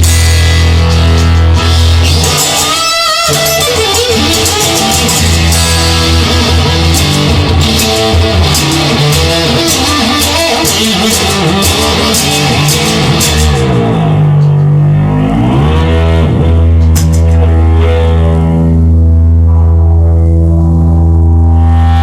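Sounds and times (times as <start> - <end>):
drums: 0.0 - 15.2, 15.8 - 17.5
bass guitar: 0.0 - 22.0
electric guitar: 0.0 - 22.0.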